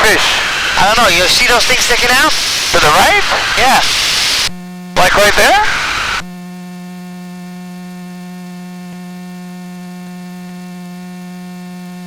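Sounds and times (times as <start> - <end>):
faint hiss: 0.0 - 6.2
electrical hum: 0.0 - 6.3.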